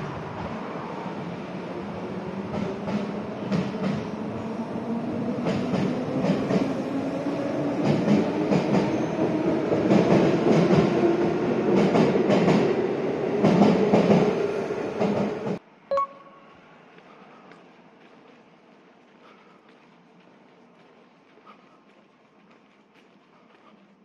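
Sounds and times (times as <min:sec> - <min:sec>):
train rumbling overhead: 0:00.0 - 0:15.7.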